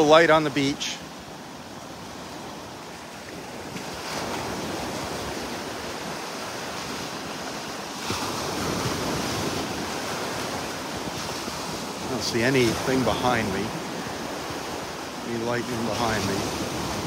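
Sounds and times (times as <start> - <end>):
surf washing up beach: 0.0 - 17.0
wind on microphone: 3.5 - 15.2.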